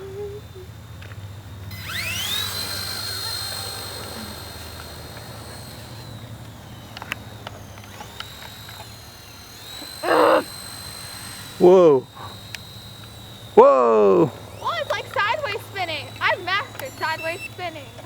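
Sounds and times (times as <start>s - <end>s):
toy helicopter motor whining: 0.0s - 18.0s.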